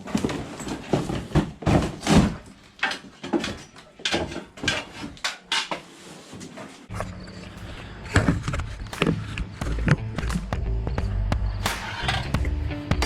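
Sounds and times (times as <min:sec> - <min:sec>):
metal clanks and scraping: 0:00.0 - 0:09.2, 0:11.7 - 0:12.4.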